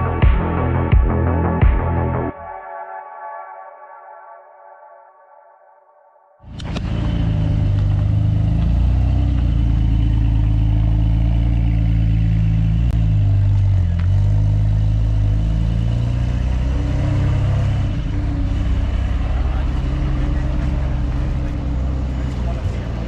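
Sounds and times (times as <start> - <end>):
car engine droning: 6.4 - 23.0.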